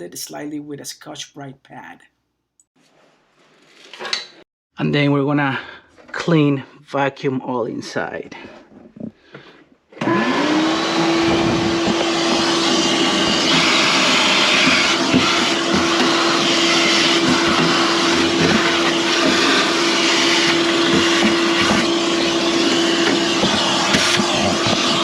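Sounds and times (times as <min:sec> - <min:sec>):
vacuum cleaner running: 0:09.9 - 0:25.0.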